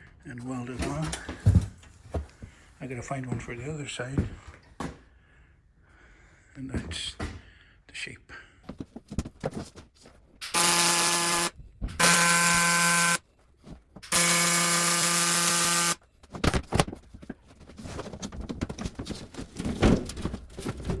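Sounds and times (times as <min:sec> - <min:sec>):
welding arc buzzing: 0:10.4 - 0:13.2, 0:14.0 - 0:16.0.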